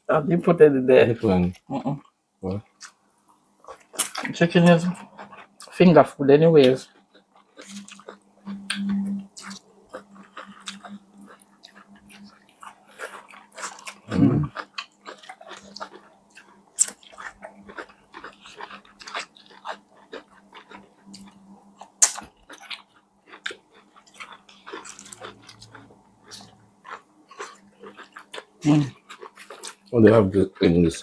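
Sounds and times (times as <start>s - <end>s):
crunchy chewing: 1.2s - 31.0s
low hum: 7.6s - 12.7s.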